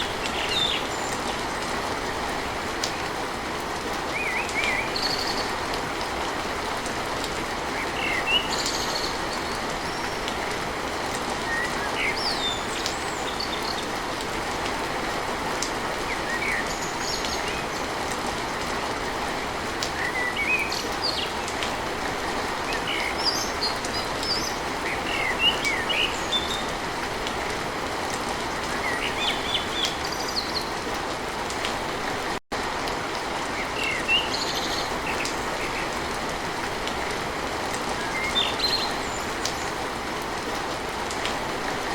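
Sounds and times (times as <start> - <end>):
birds chirping: 0.0 - 3.2, 4.1 - 5.7, 7.7 - 10.4, 19.4 - 26.8, 28.6 - 31.0, 33.4 - 40.0
steady rain: 0.0 - 41.9.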